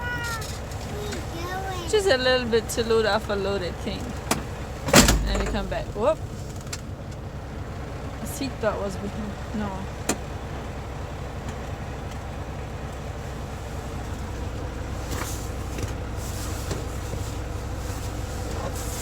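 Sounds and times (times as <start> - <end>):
diesel engine idling: 0.0 - 19.0
faint clicks and rustles: 11.4 - 19.0.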